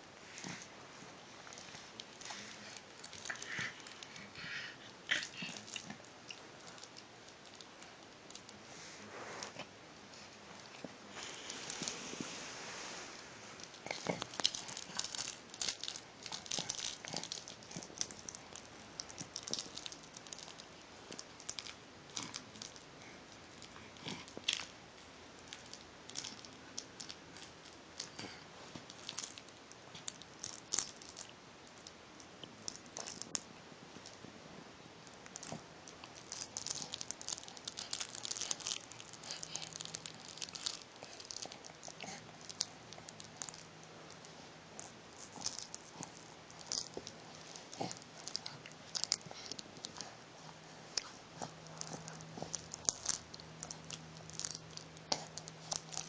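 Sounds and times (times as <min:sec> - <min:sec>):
pet chewing on a toy: 0:01.4 - 0:08.6, 0:10.5 - 0:12.4, 0:13.1 - 0:24.7, 0:35.2 - 0:56.0.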